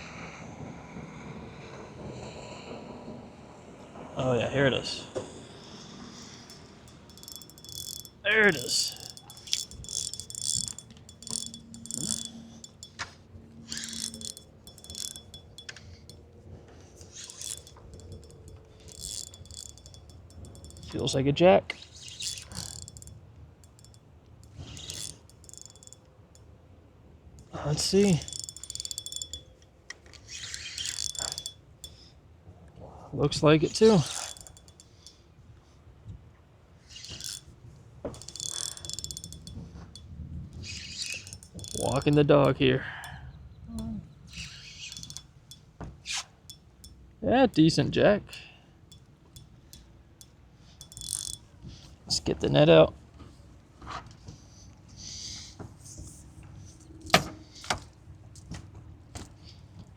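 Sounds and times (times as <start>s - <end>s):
fishing reel ticking and rattling: 6.2s - 16.3s, 17.0s - 21.2s, 21.9s - 26.5s, 27.4s - 32.0s, 33.7s - 35.2s, 36.9s - 52.0s, 57.1s - 57.3s.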